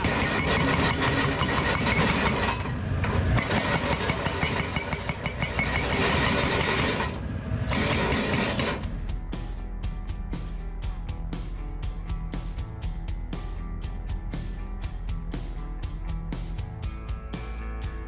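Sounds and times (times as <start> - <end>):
hydraulic hammer pounding rock: 0.0 - 8.9.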